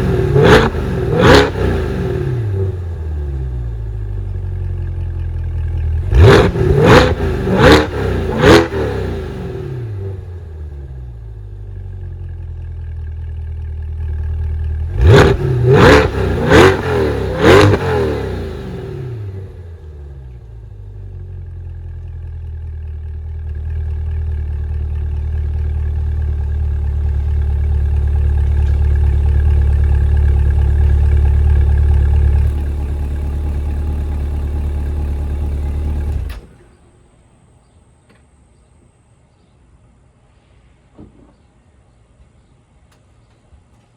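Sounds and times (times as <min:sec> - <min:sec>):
sports car engine revving: 0:00.0 - 0:04.5, 0:05.7 - 0:11.5, 0:14.3 - 0:21.0, 0:26.4 - 0:36.5.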